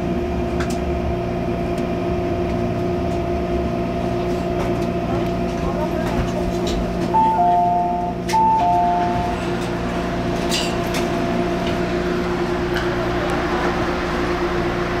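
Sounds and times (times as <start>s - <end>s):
train interior hum: 0.0s - 15.0s
two-note electronic chime: 7.2s - 9.5s.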